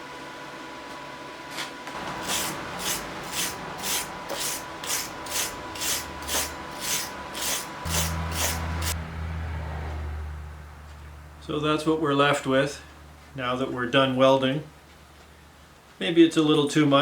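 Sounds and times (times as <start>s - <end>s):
low hum: 2.0s - 13.9s
hand tool scraping metal: 2.1s - 9.0s.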